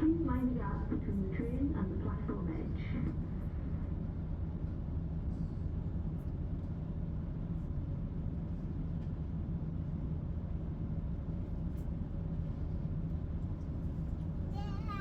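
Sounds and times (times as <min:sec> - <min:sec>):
train diesel engine rumble: 0:00.0 - 0:15.0.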